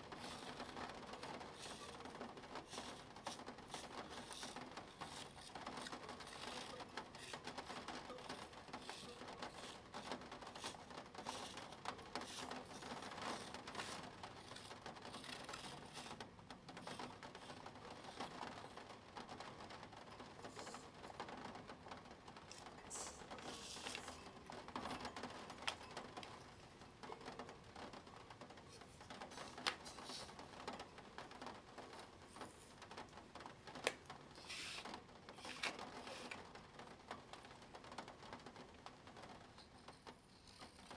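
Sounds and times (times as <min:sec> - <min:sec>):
pen scratching on paper: 0:00.1 - 0:16.2, 0:22.9 - 0:24.3, 0:34.4 - 0:36.4
plastic gear wheel clicking: 0:00.1 - 0:16.2, 0:33.8 - 0:36.4.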